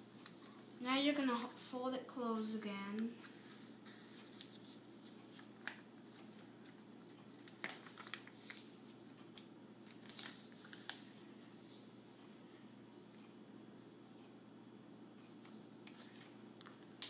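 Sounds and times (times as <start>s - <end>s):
paper being folded and creased: 3.2s - 6.8s, 7.4s - 8.8s, 9.8s - 11.9s.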